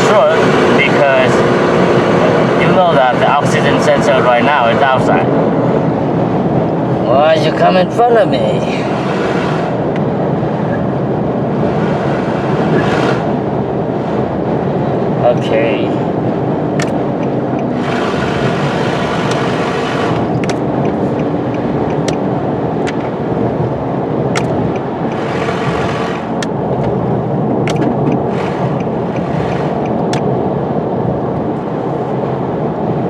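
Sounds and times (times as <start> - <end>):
road and wind noise: 0.0 - 33.0
truck engine cruising: 0.0 - 33.0
sharp clicks: 16.7 - 18.2, 19.2 - 23.2, 24.3 - 27.0, 27.6 - 30.3.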